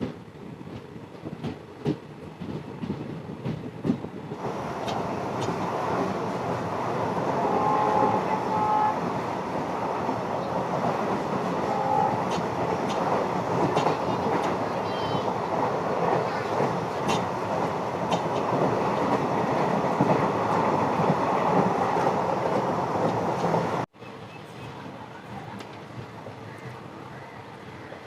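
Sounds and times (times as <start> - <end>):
train rumbling: 0.0 - 28.0
train wheels knocking on rail joints: 10.7 - 14.7, 16.0 - 23.6.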